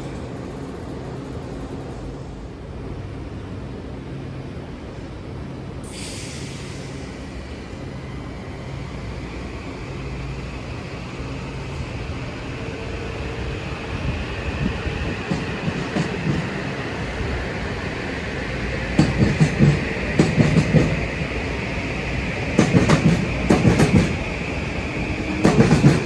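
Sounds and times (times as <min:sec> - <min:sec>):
train low drone: 0:00.0 - 0:26.0
burst of hiss: 0:05.8 - 0:07.4
wheel clacks over rail joints: 0:19.0 - 0:21.0, 0:22.6 - 0:24.2, 0:25.3 - 0:26.0.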